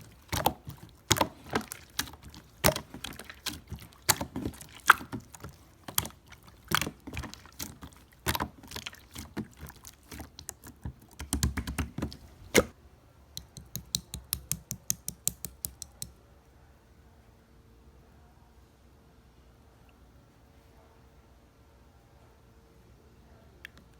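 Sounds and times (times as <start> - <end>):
irregular tapping and clicking: 10.2 - 12.7, 13.4 - 16.1.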